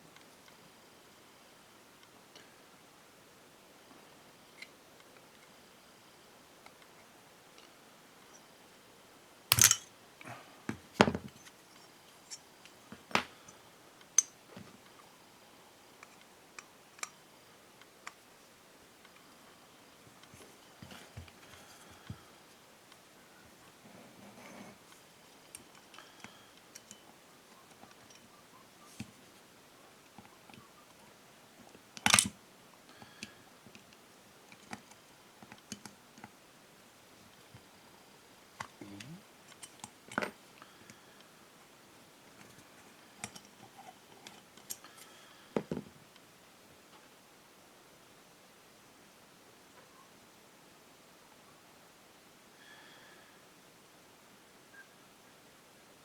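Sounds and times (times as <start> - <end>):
metal parts and tools clicking: 9.5 - 9.9.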